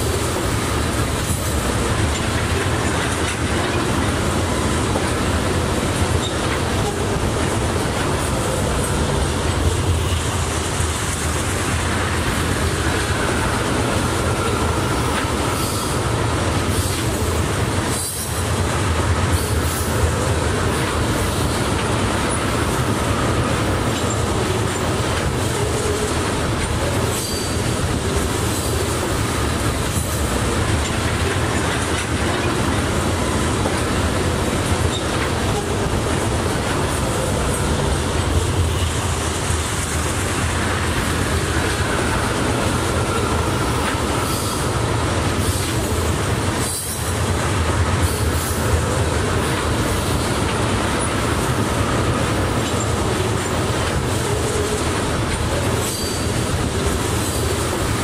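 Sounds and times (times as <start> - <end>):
steel wheels rumbling on rail: 0.0 - 58.0
faint wheel squeal: 27.1 - 27.6, 55.8 - 56.3.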